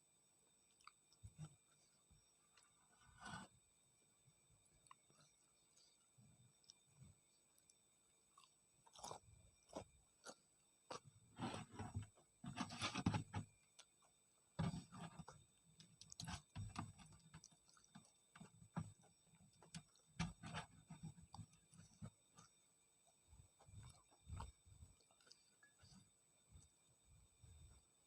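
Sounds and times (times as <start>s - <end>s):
person chewing wetly: 0.7s - 1.4s, 7.6s - 11.6s, 15.3s - 26.7s.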